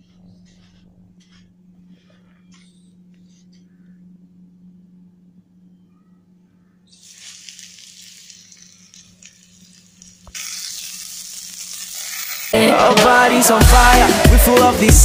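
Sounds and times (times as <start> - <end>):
faint steady hum: 0.0 - 12.8
patties sizzling in oil: 7.0 - 12.6.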